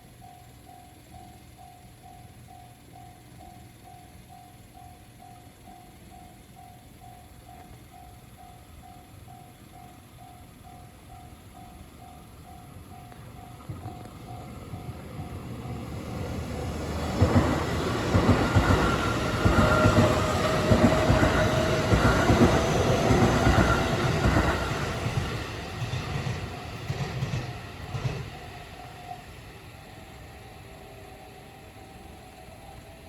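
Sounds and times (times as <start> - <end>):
electric train passing at speed: 0.0 - 33.0
wheels clacking over rail joints: 13.1 - 28.6.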